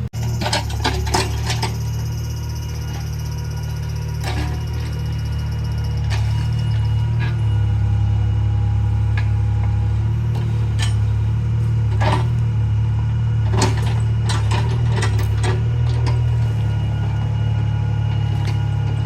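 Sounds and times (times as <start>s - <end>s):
diesel engine running: 0.0s - 19.0s
metallic clanks and scrapes: 0.3s - 1.8s, 4.2s - 5.0s, 6.0s - 7.6s, 10.3s - 11.2s, 11.9s - 12.4s.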